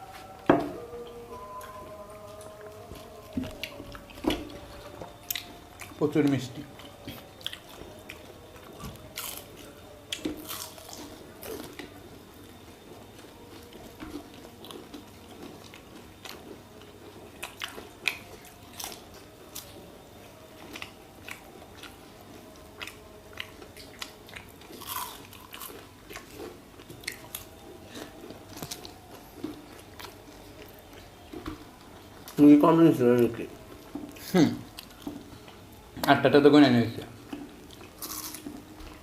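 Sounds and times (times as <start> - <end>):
people chewing wet crunches: 0.0 - 39.0.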